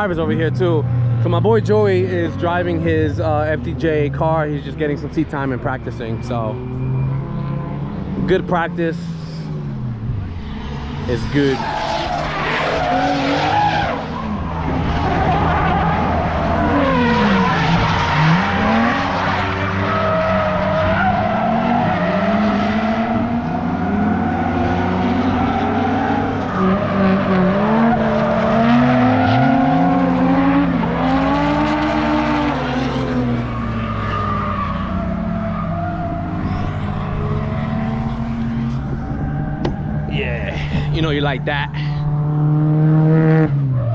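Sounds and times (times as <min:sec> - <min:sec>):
car engines revving: 0:00.0 - 0:43.9
tyre squeal and skidding: 0:10.6 - 0:30.2, 0:33.1 - 0:40.9.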